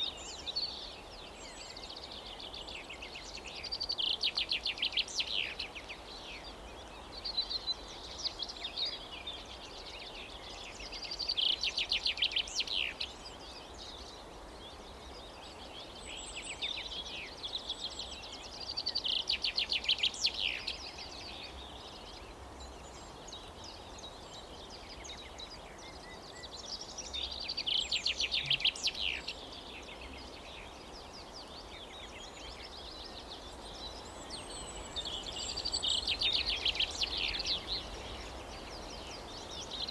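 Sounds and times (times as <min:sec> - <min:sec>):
faint outdoor background: 0:00.0 - 0:39.9
songbirds trilling: 0:24.7 - 0:39.9.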